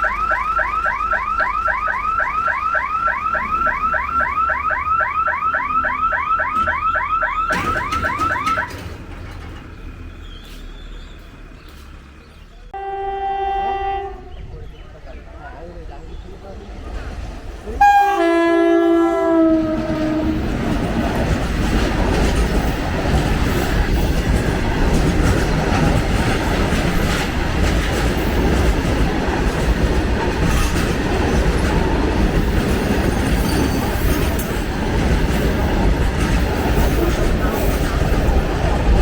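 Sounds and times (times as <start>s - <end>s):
freight train wagons rumbling: 0.0s - 39.0s
wheels clattering over rail joints: 6.4s - 12.7s, 19.3s - 39.0s
two-tone train horn: 12.8s - 14.5s, 17.8s - 20.6s.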